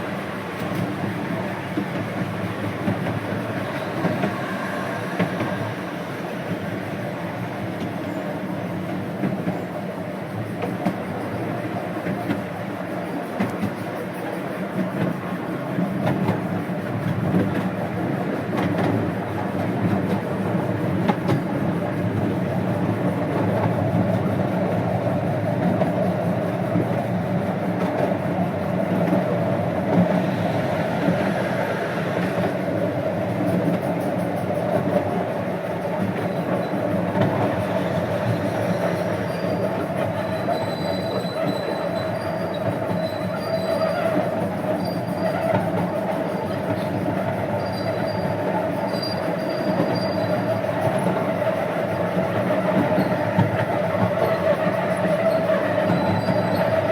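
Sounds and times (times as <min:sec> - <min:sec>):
steam train running on track: 0:00.0 - 0:56.9
faint high squeal: 0:03.5 - 0:06.4, 0:37.8 - 0:45.7, 0:47.5 - 0:50.6, 0:54.2 - 0:56.9.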